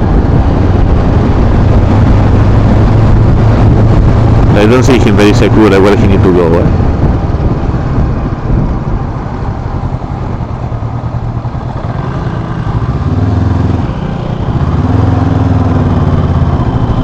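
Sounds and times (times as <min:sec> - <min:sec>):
wind and road noise: 0:00.0 - 0:17.0
motorcycle engine running: 0:06.7 - 0:17.0.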